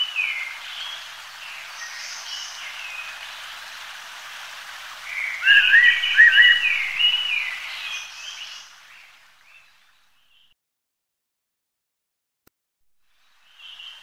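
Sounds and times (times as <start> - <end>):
steady background hiss: 0.0 - 10.3, 13.0 - 14.0
wild birds calling: 0.0 - 10.3.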